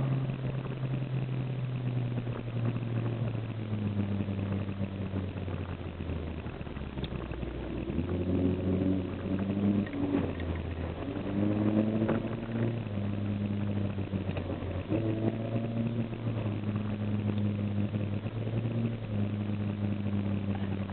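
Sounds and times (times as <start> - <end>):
car engine idling and revving: 0.0 - 20.9.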